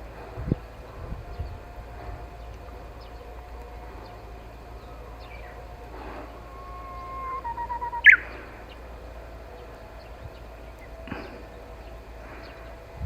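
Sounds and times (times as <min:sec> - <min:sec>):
bush warbler singing: 0:00.0 - 0:13.0.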